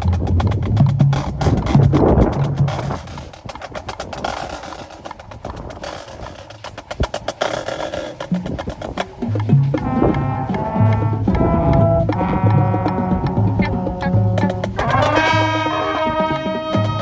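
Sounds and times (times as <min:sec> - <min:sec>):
fast clicking percussion: 0:00.0 - 0:17.0
band music with brass and bass: 0:07.4 - 0:17.0.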